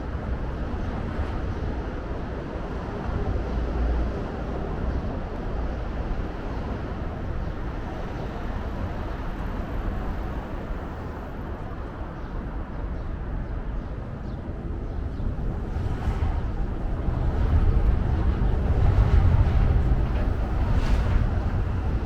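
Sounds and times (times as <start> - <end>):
distant traffic rumble: 0.0 - 22.0.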